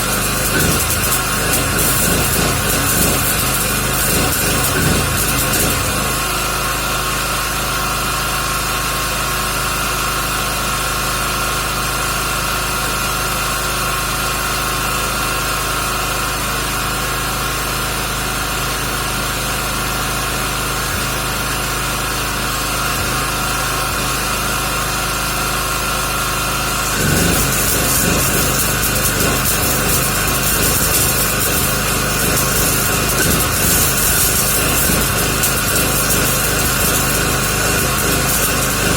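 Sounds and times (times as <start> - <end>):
welding arc crackling: 0.0 - 8.6, 12.6 - 38.9
generator humming: 0.0 - 38.9.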